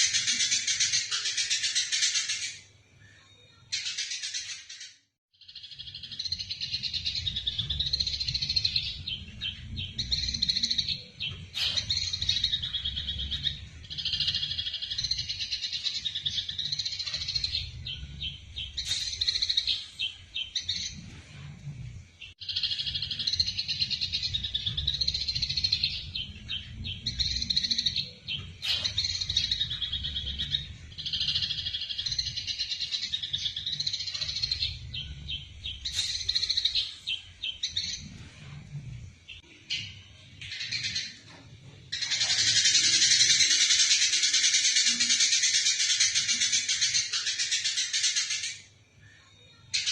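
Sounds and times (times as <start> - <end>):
sparrows chirping: 0.0 - 49.9.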